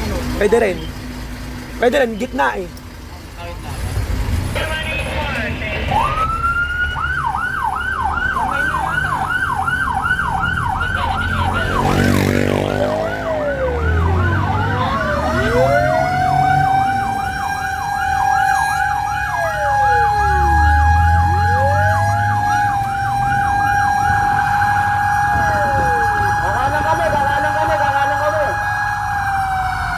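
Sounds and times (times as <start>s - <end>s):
fire truck engine rumbling: 0.0s - 29.9s
siren tone gliding: 5.9s - 29.9s
siren yelping: 5.9s - 29.9s.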